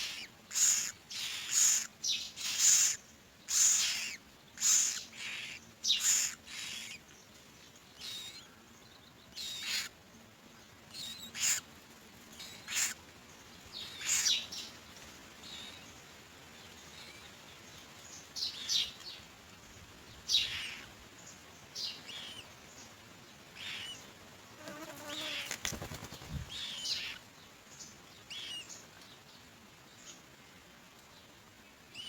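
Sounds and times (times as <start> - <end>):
mynas giving harsh raspy calls: 0.0 - 7.2, 8.0 - 8.5, 9.4 - 10.0, 10.9 - 11.7, 12.4 - 13.0, 13.8 - 14.4, 20.3 - 20.9, 23.6 - 24.0, 26.5 - 27.2.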